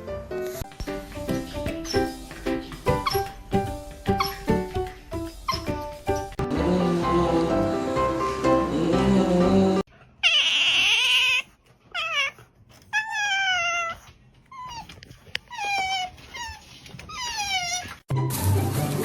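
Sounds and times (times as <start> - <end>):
background music: 0.0 - 9.9
dog whining: 2.8 - 6.4, 10.2 - 18.1.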